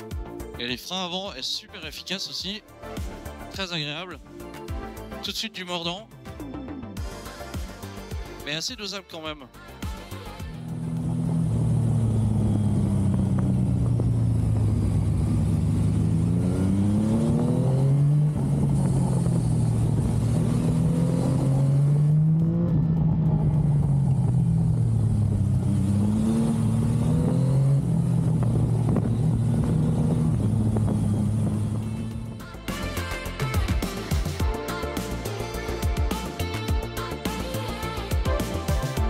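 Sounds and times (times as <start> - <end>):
motorcycle engine accelerating: 10.3 - 39.0.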